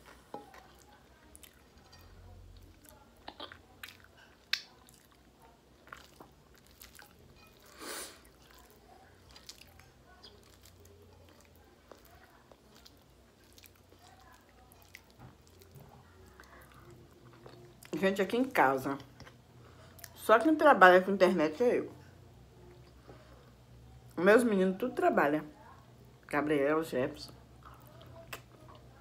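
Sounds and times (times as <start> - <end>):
person chewing with mouth clicks: 2.8 - 5.2, 5.8 - 8.7.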